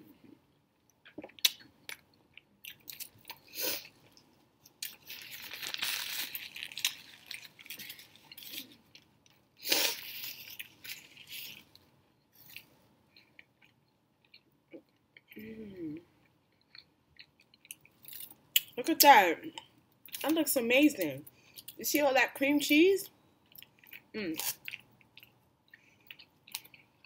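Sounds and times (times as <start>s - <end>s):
chewing with mouth clicks: 16.2s - 18.7s, 23.4s - 27.0s.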